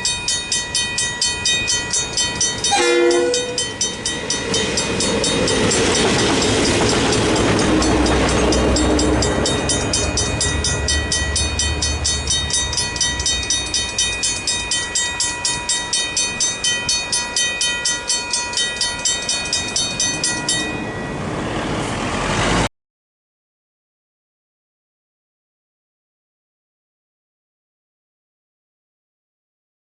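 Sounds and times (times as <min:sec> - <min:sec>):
level-crossing bells ringing: 0:00.0 - 0:21.6
train rumbling past: 0:00.0 - 0:22.7.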